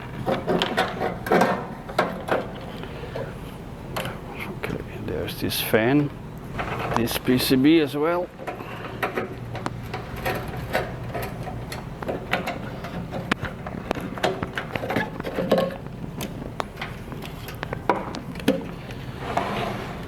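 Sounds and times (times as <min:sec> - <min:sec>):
hand tools clicking and rattling: 0:00.1 - 0:03.4, 0:08.4 - 0:19.0.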